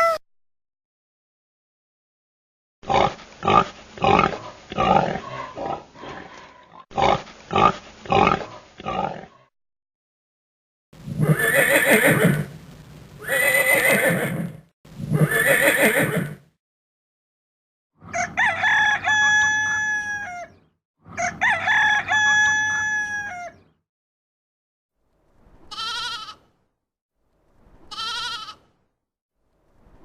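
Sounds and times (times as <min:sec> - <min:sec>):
horse neighing: 0:11.2 - 0:12.6, 0:13.2 - 0:16.4.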